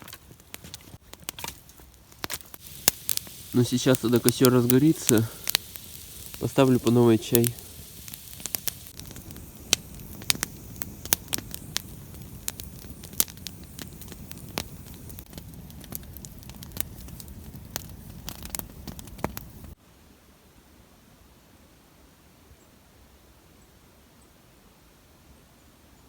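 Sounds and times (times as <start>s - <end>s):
campfire crackling and popping: 0.0s - 19.8s
low rush of flame: 2.1s - 19.8s.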